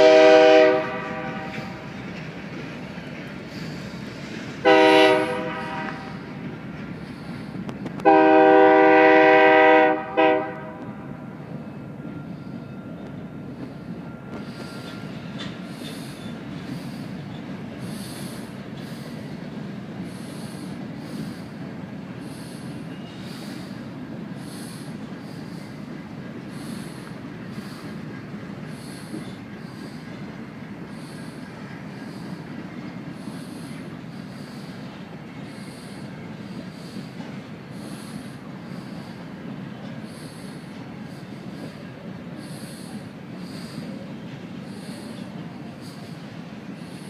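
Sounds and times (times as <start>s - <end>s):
train wheels rumbling on rails: 0.0s - 47.0s
short hissing sounds: 17.8s - 19.4s, 20.0s - 21.6s, 22.2s - 30.2s, 30.8s - 47.0s.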